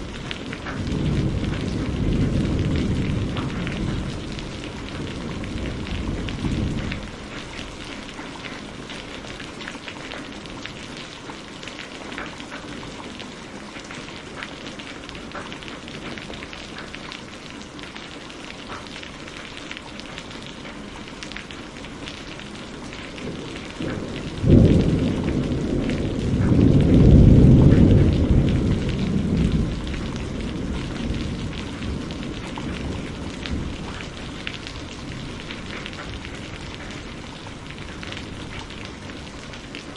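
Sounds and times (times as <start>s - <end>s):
rolling thunder: 0.0s - 8.3s, 22.8s - 39.9s
steady rain falling: 0.0s - 39.9s.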